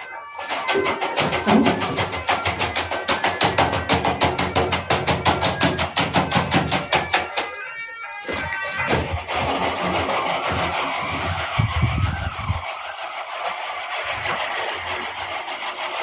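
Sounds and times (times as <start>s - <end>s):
fast percussive beat: 0.5s - 7.5s.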